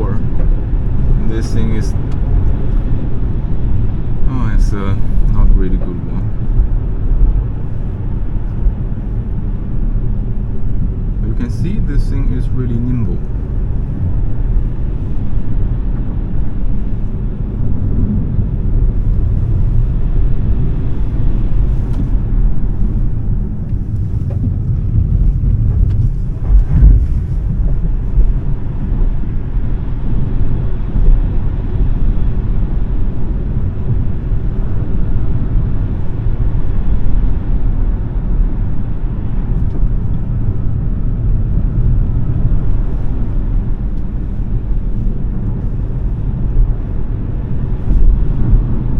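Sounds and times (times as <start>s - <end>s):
road and tyre rumble: 0.0s - 48.9s
wind noise: 0.0s - 48.9s
short thump: 24.2s - 28.5s, 47.8s - 48.5s.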